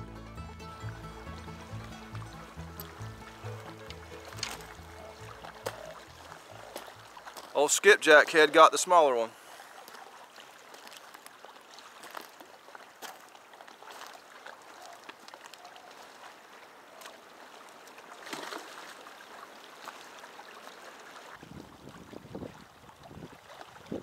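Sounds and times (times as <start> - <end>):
water lapping on rocks: 0.9 - 24.0
footsteps on gravel: 1.8 - 8.6, 10.7 - 14.3
fish splashing into water: 9.8 - 21.4.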